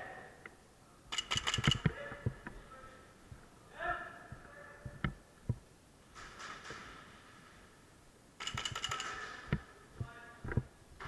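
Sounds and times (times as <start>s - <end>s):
airsoft guns firing bursts: 1.1s - 1.9s, 8.4s - 9.6s.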